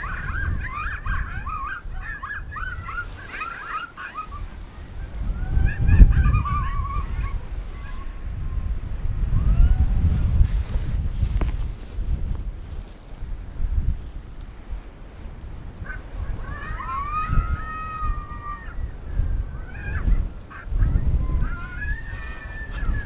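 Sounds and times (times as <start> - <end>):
electronic coyote call yips and howls: 0.0 - 8.3, 15.8 - 23.0
wind rumbling on microphone: 0.0 - 23.0.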